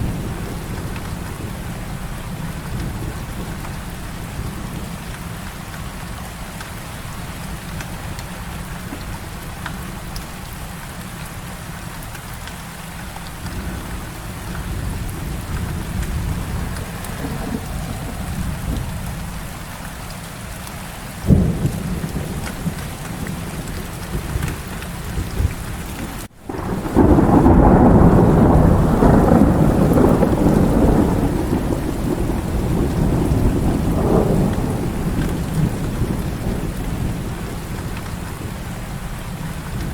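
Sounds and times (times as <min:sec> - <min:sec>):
heavy rain falling: 0:00.0 - 0:39.9
thunder crack: 0:13.3 - 0:19.7, 0:21.3 - 0:38.6
loud thunder rumble: 0:13.3 - 0:19.9, 0:21.2 - 0:39.9.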